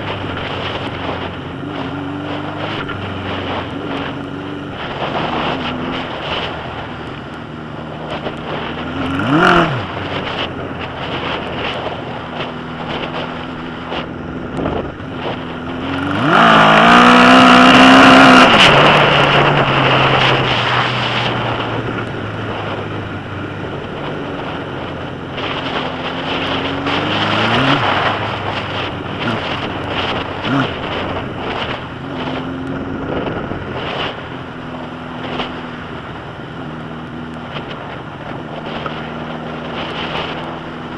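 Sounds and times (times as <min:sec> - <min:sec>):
motorcycle engine revving: 0:00.0 - 0:40.9
wind noise on microphone: 0:00.0 - 0:40.9.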